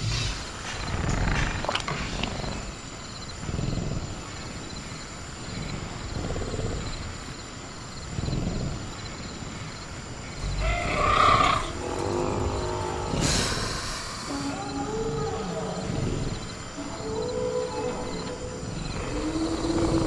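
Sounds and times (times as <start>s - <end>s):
crickets chirping: 0.0s - 20.0s
low creature growls: 5.4s - 7.3s, 10.3s - 20.0s.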